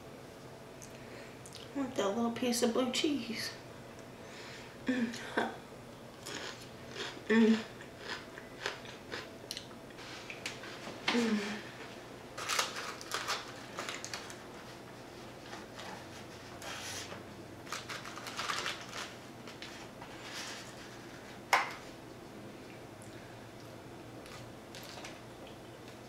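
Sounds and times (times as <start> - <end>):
crunching fried chicken: 6.2 - 7.2, 12.4 - 14.7, 17.6 - 19.8, 24.2 - 26.0
paper rustling: 12.4 - 21.4.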